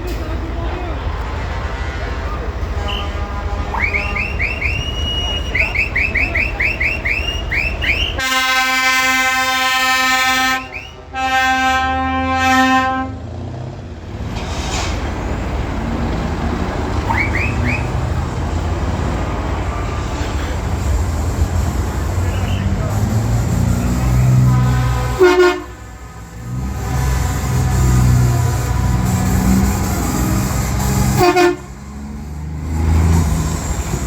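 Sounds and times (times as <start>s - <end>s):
air horn blasts: 2.8s - 13.3s, 21.6s - 31.9s.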